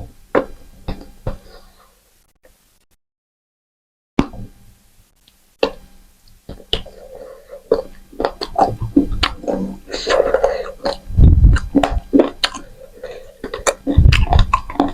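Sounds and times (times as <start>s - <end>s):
chewing and lip-smacking: 6.5s - 14.9s.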